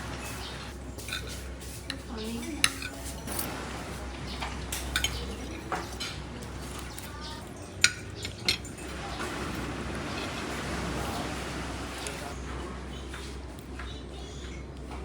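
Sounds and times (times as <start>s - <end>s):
sharp clinks and taps: 1.0s - 3.5s, 4.7s - 8.9s.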